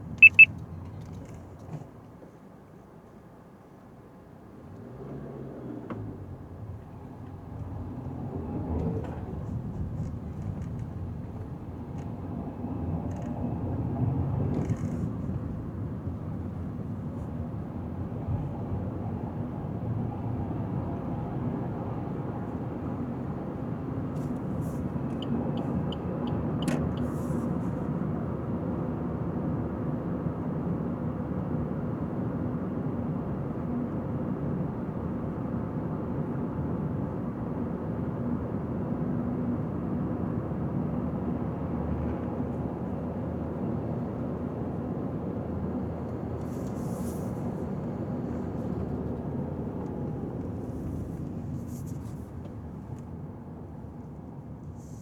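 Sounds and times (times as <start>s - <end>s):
tyre and engine rumble: 5.1s - 18.9s, 41.3s - 55.0s.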